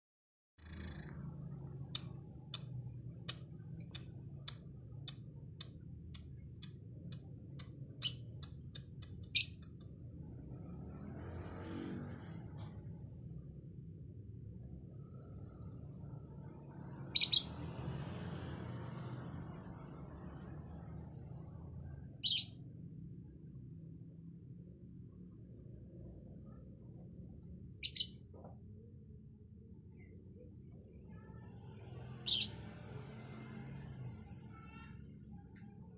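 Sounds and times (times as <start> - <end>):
lovebird chirping: 0.6 - 2.7, 3.3 - 10.6, 17.0 - 17.8, 27.3 - 28.3, 32.1 - 32.6
faint bird chirps: 0.6 - 16.5, 34.0 - 35.9.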